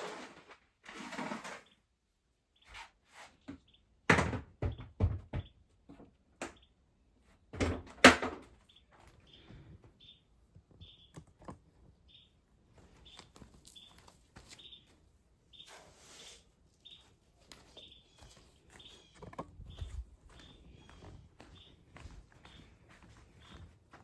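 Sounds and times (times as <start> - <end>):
knocks and thuds: 4.1 - 5.6.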